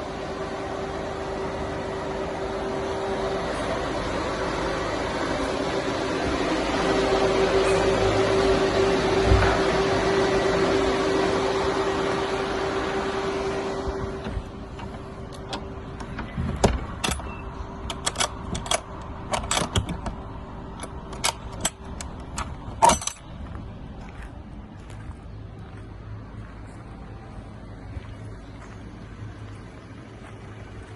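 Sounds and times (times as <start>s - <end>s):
fan-like hum: 0.0s - 30.9s.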